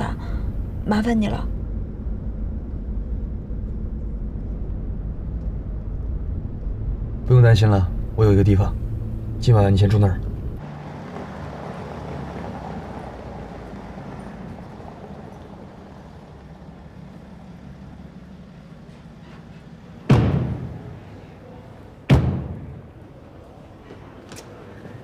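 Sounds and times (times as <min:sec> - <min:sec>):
car interior drone: 0:00.0 - 0:21.6
loud thumps: 0:20.0 - 0:21.0, 0:22.1 - 0:23.0.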